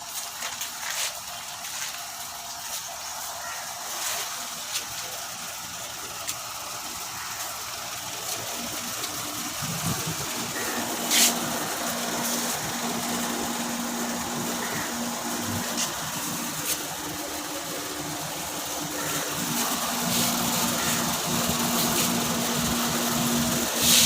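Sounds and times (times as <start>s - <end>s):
tractor engine idling: 0.0s - 24.0s.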